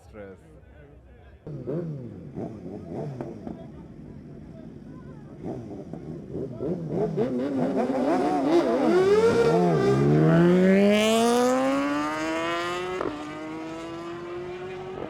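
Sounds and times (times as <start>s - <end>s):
motorcycle engine revving: 1.5s - 15.0s.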